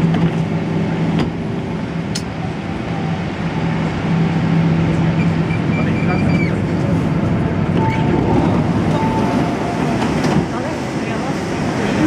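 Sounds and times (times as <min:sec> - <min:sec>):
train low hum: 0:00.0 - 0:12.0.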